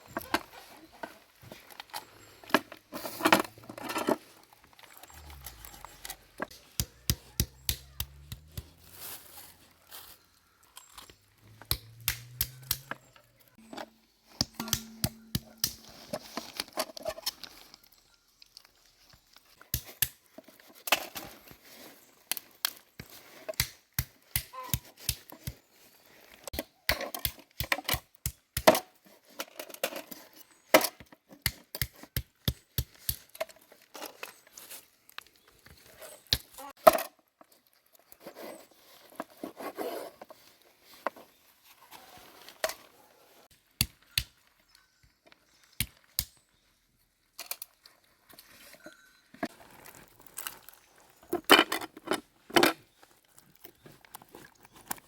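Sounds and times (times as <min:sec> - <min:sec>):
tearing and crinkling: 0:49.5 - 0:51.5.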